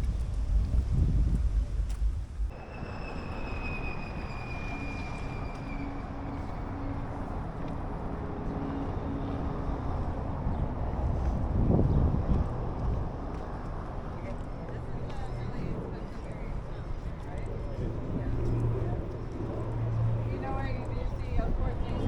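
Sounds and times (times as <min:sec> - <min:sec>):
road traffic rumble: 0:00.0 - 0:22.0
thin high whine: 0:02.5 - 0:06.8.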